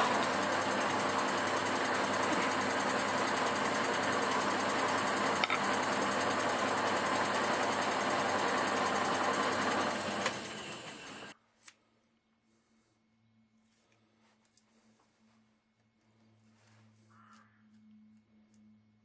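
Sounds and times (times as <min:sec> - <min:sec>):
machine tool motor running: 0:00.0 - 0:11.3.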